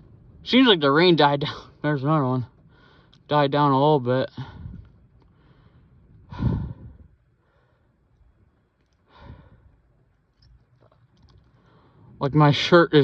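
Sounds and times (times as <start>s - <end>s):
man breathing out heavily: 4.4s - 8.0s, 9.0s - 9.8s.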